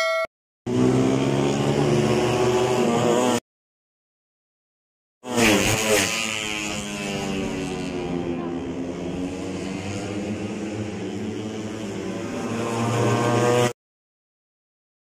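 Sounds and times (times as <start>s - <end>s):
motorcycle engines at high revs: 0.7s - 3.4s, 5.2s - 13.8s.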